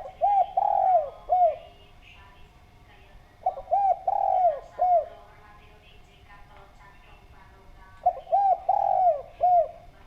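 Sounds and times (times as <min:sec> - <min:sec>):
dove cooing: 0:00.0 - 0:01.8, 0:03.4 - 0:05.4, 0:08.0 - 0:09.9.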